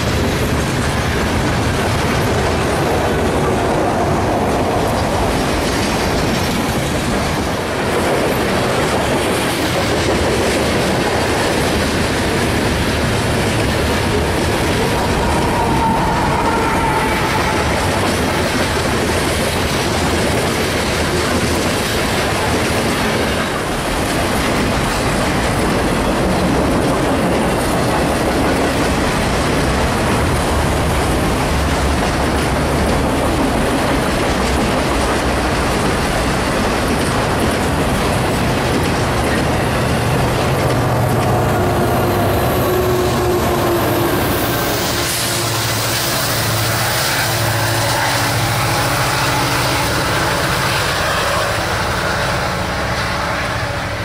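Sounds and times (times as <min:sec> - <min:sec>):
clatter over rail joints: 0:00.0 - 0:15.6, 0:17.4 - 0:43.5
freight cars rumbling on rail: 0:00.0 - 0:54.0
locomotive hum: 0:00.0 - 0:54.0.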